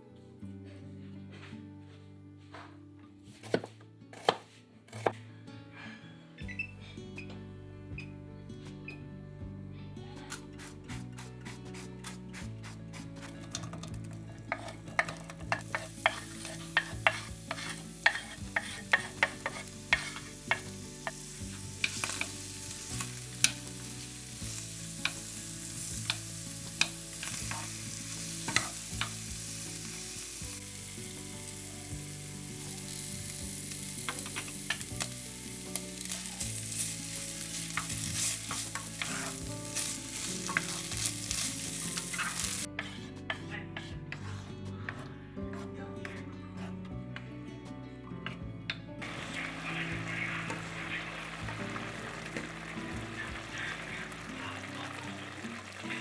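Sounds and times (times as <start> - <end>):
food sizzling in a pan: 10.7 - 43.0, 49.0 - 56.0
utensil clicking against pan: 13.2 - 22.4.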